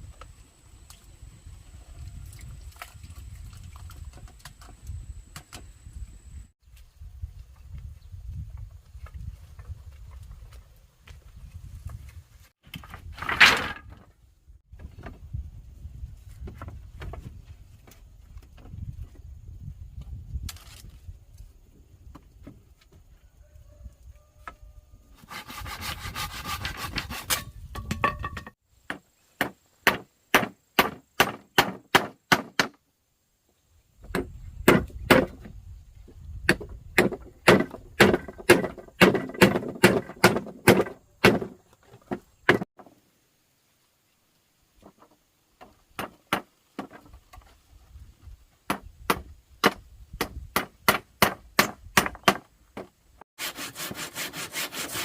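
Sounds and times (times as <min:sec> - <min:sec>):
scraping or rubbing: 0:25.2 - 0:27.6, 0:53.4 - 0:55.0
chopping strokes on wood: 0:28.9 - 0:32.8, 0:36.5 - 0:42.7.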